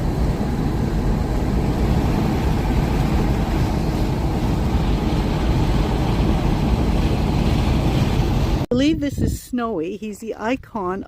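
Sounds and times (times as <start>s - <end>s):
vehicle driving on road: 0.0s - 8.7s.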